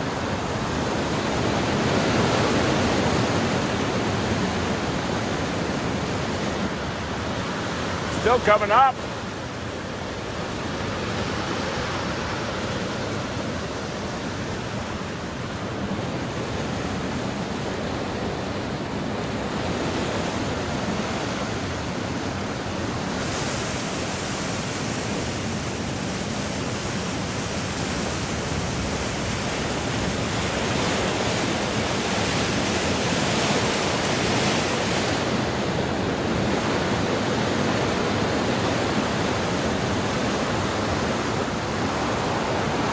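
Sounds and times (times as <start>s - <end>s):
floodwater rushing: 0.1s - 15.8s, 36.0s - 42.9s.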